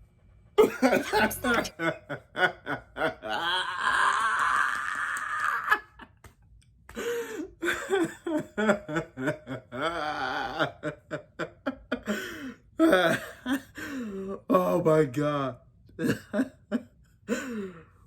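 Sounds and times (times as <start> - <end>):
person laughing hard: 0.6 - 6.1, 7.6 - 12.2.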